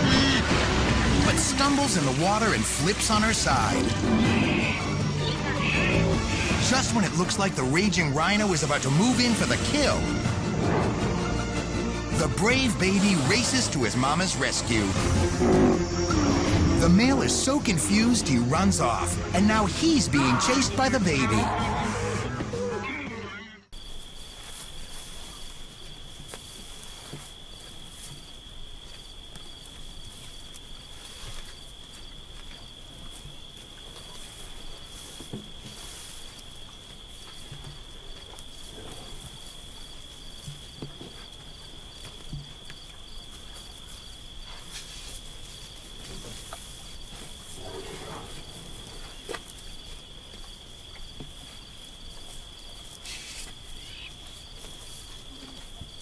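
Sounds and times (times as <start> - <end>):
insects trilling: 0.0 - 56.0
faint rustles and knocks: 23.8 - 56.0.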